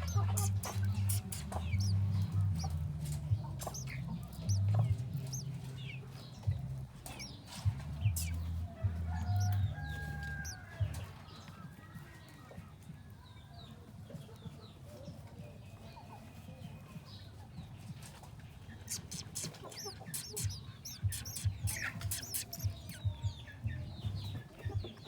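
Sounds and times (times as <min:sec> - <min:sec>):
low stepped bass drone: 0:00.0 - 0:09.8
nestlings chirping: 0:00.0 - 0:10.7, 0:18.8 - 0:23.4.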